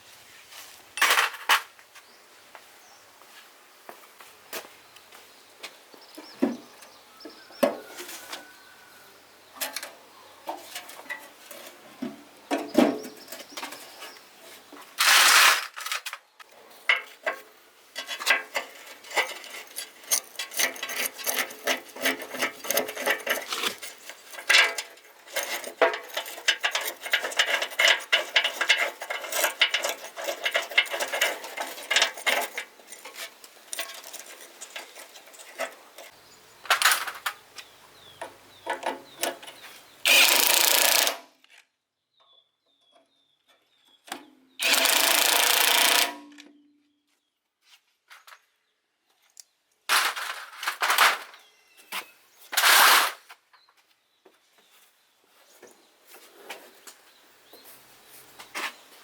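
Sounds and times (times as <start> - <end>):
metal parts clinking and scraping: 15.0 - 16.2, 16.8 - 37.4, 38.7 - 41.2, 44.6 - 46.4, 49.9 - 51.5.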